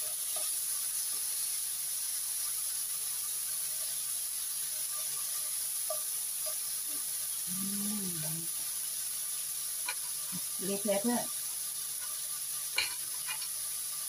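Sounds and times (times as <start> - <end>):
fork turning meat in a pan: 0.0 - 7.2, 9.8 - 13.7
meat sizzling in a pan: 0.0 - 14.0.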